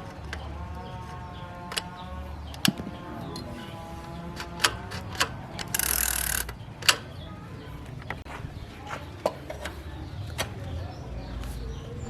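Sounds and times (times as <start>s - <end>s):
metallic clicks and knocks: 4.3s - 7.2s.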